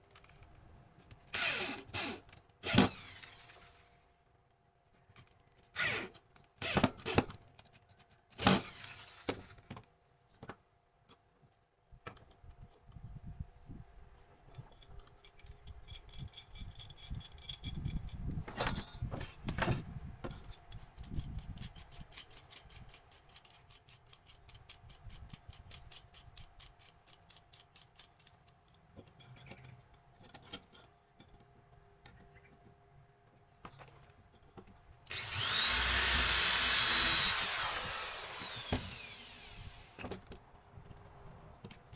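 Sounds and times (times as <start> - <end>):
metal pieces clinking and rattling: 14.5 - 19.0.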